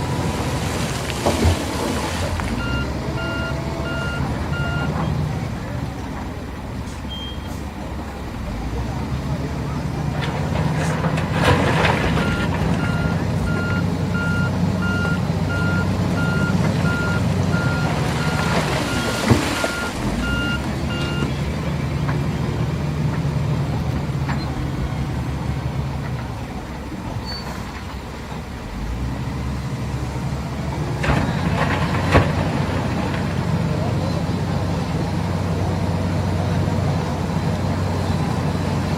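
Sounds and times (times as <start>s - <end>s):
heavy vehicle engine running: 0.0s - 38.9s
reversing alarm beeping: 2.6s - 5.1s, 12.2s - 21.3s.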